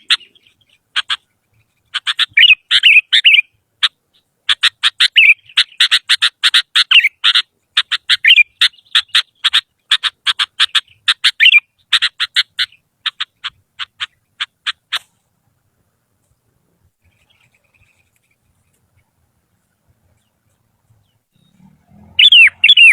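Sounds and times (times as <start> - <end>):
bird calling sharp notes: 0.0 - 15.2, 20.1 - 22.9
faint chirp: 16.3 - 22.9.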